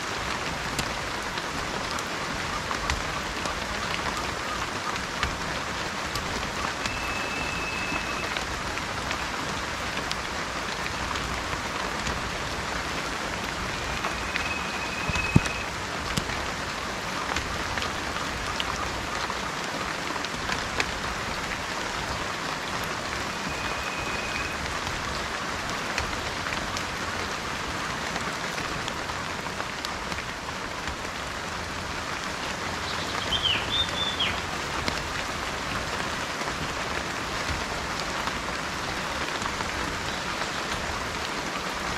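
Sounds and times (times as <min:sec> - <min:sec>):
steady rain falling: 0:00.0 - 0:41.9
sharp raindrop hits: 0:00.1 - 0:19.1
bird warbling call: 0:06.6 - 0:08.4, 0:13.7 - 0:15.7, 0:23.3 - 0:24.6, 0:32.9 - 0:34.4
bird whistling: 0:06.9 - 0:08.3, 0:13.8 - 0:15.7, 0:23.4 - 0:24.6, 0:33.0 - 0:34.4.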